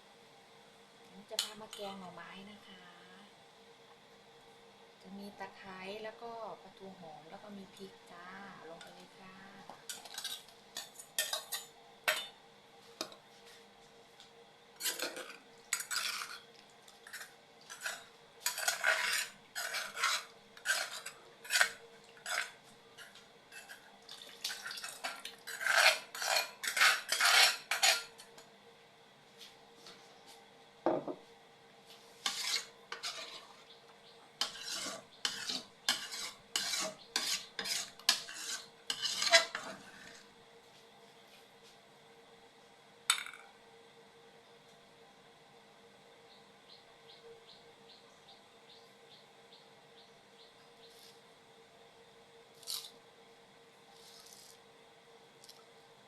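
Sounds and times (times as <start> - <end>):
metal spoon scraping in pot: 9.6 - 12.3, 14.8 - 28.4, 32.2 - 33.7, 34.4 - 40.2.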